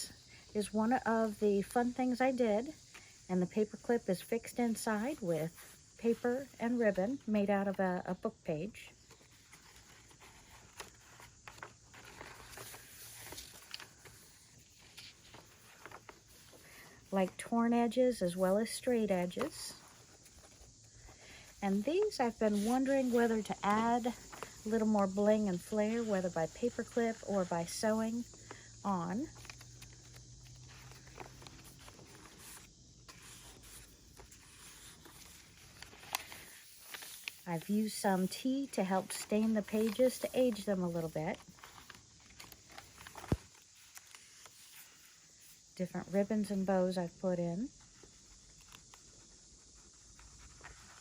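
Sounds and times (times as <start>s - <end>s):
paper pages rustling: 8.9s - 45.6s, 47.8s - 51.0s.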